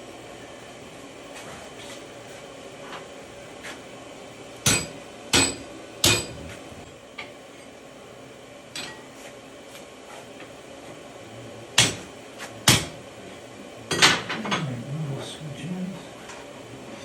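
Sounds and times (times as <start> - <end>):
hammer striking iron on anvil: 4.6 - 6.4, 11.8 - 13.0.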